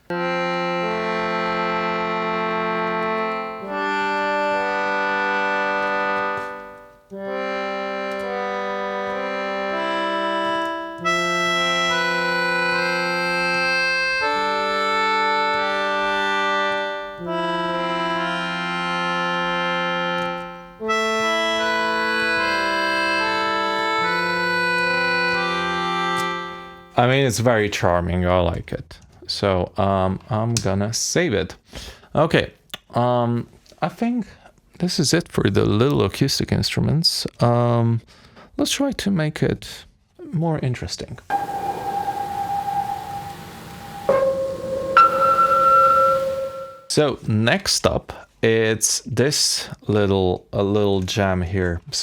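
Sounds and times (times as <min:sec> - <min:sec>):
sustained reedy concertina chords: 0:00.1 - 0:27.0, 0:41.3 - 0:46.9.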